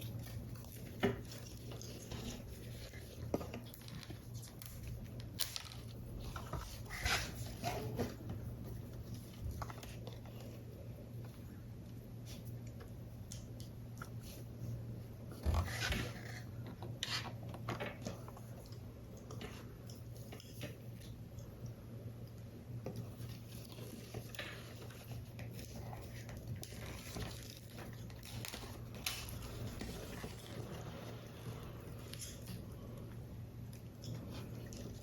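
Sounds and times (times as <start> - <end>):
paper crinkling: 0.0 - 11.4, 22.8 - 32.9.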